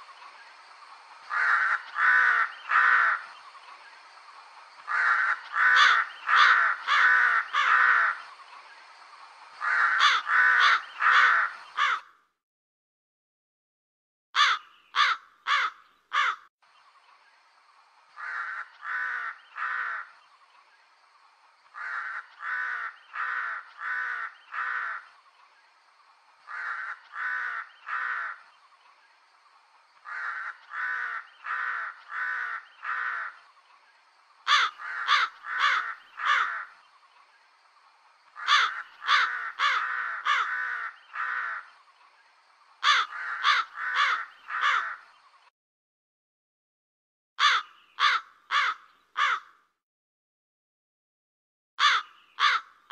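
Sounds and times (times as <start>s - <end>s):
crow cawing: 1.3s - 3.3s, 4.8s - 8.3s, 9.6s - 12.2s, 14.4s - 16.5s, 18.2s - 20.2s, 21.7s - 25.2s, 26.4s - 28.5s, 30.0s - 33.5s, 34.4s - 36.8s, 38.4s - 41.8s, 42.8s - 45.1s, 47.4s - 49.7s, 51.8s - 52.8s.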